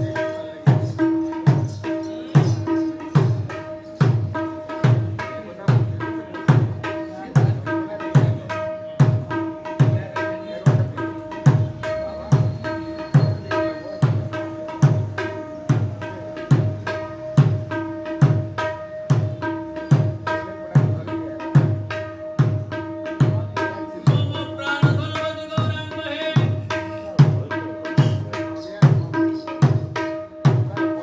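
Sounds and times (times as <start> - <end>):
barrel drum played rhythmically: 0.0 - 31.0.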